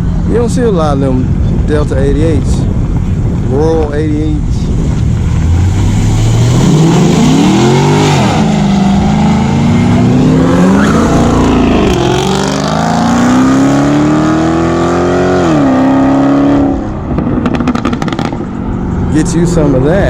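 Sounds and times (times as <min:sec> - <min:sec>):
car engine accelerating through gears: 0:04.9 - 0:18.5.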